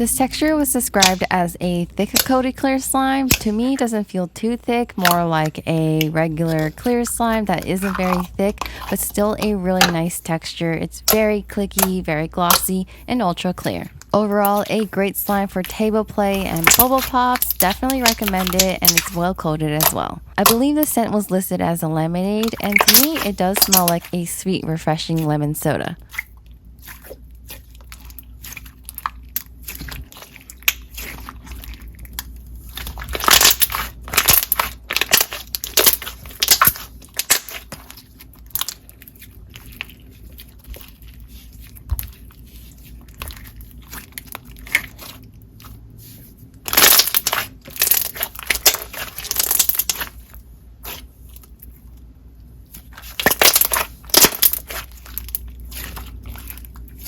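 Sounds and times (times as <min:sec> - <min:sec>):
slime clicking and popping: 0:22.4 - 0:24.1, 0:33.0 - 0:37.9, 0:46.7 - 0:50.1, 0:53.0 - 0:56.5.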